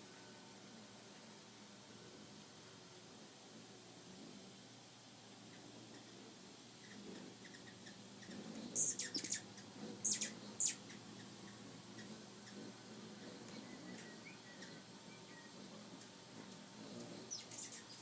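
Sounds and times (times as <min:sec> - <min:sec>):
hummingbird high squeaky chips: 0:06.8 - 0:12.6, 0:17.0 - 0:18.0.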